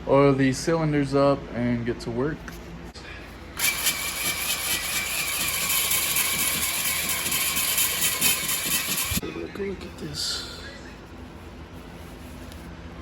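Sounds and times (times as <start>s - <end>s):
power tool motor whine: 3.6s - 9.2s.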